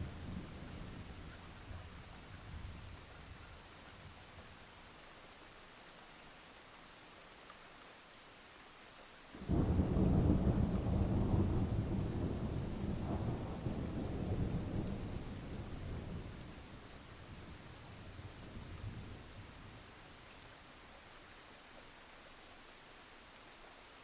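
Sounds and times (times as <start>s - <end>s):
light rain hissing: 0.0s - 24.0s
thunder rumbling: 9.4s - 16.6s.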